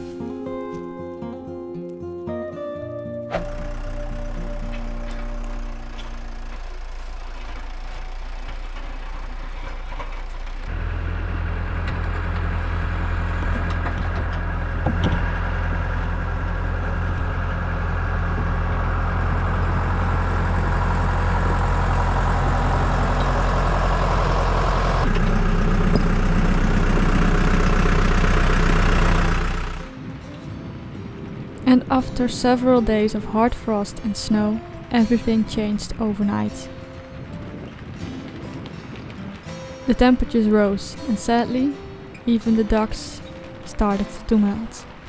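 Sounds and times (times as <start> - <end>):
vehicle engine humming: 3.3 - 45.0.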